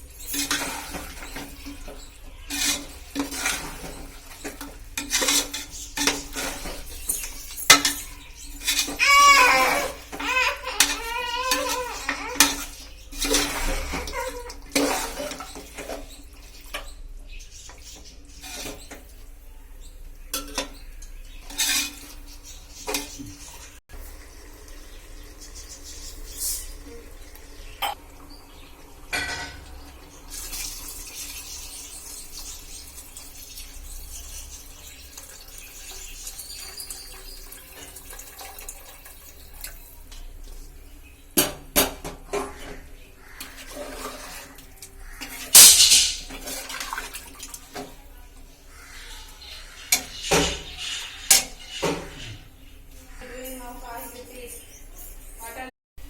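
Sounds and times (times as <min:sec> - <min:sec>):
metal utensils clinking: 0:00.0 - 0:17.0, 0:17.8 - 0:19.2, 0:20.3 - 0:23.8, 0:43.4 - 0:48.0.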